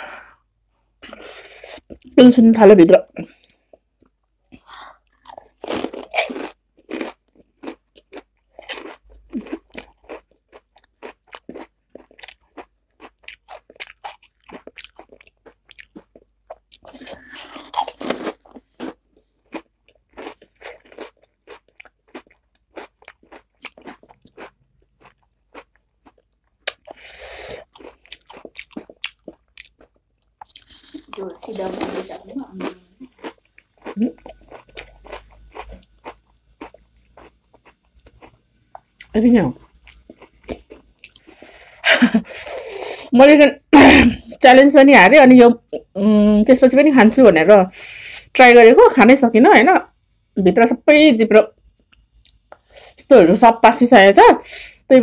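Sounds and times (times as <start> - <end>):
crisp food crunching: 5.1 - 41.4.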